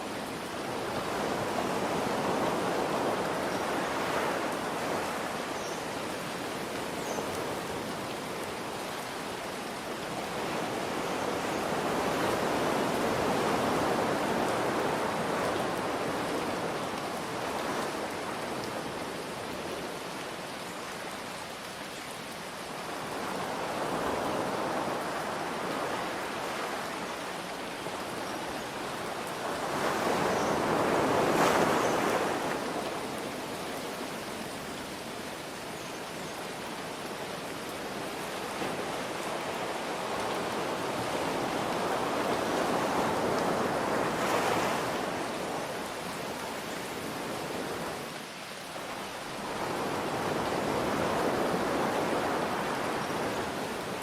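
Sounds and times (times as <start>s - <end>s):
ocean waves washing in: 37.7s - 54.0s.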